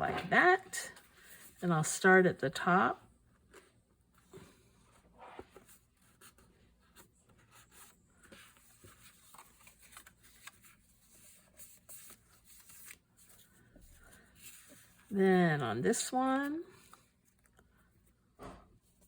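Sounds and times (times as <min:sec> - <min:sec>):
paper rustling: 0:04.4 - 0:15.1.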